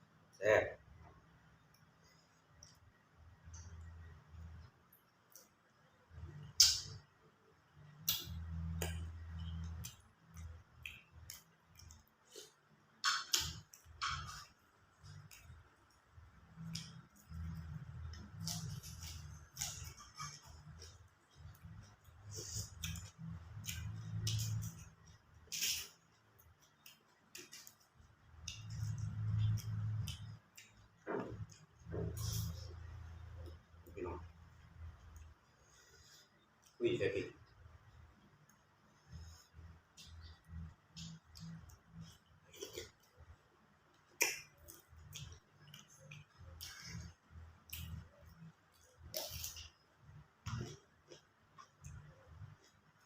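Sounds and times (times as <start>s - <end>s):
chewing shrimp: 7.9s - 33.9s, 38.3s - 53.0s.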